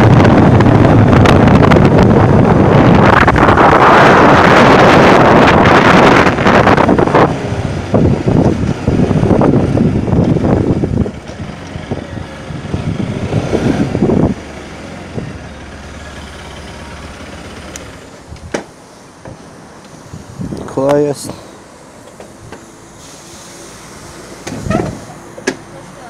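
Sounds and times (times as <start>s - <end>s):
motorcycle engine: 0.0s - 18.5s
wind noise on microphone: 0.0s - 18.7s, 20.0s - 20.8s, 24.2s - 25.2s.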